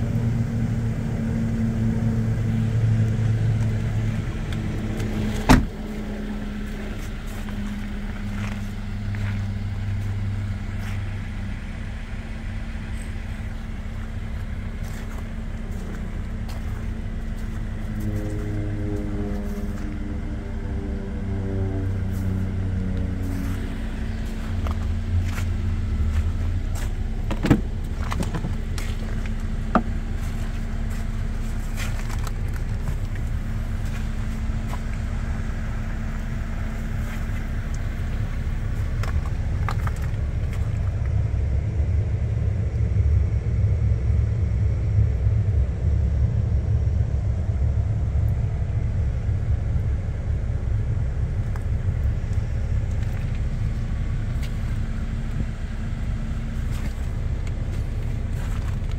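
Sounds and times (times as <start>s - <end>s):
car engine idling: 0.0s - 58.9s.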